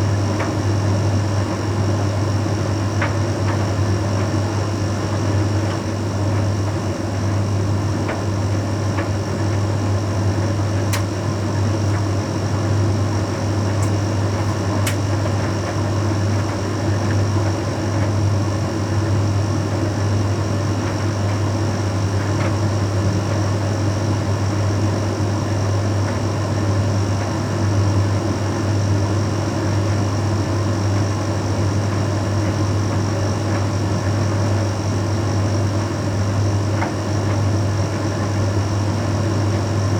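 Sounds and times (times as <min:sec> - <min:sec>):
tumble dryer humming: 0:00.0 - 0:18.7.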